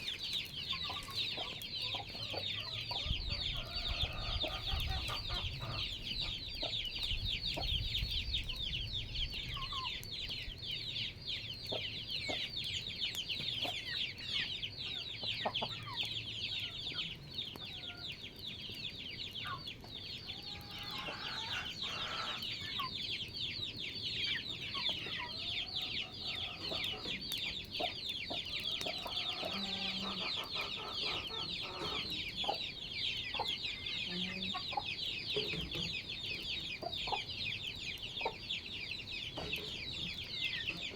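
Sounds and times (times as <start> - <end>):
chickens clucking: 0.0 - 40.9
small birds chirping: 0.0 - 40.9.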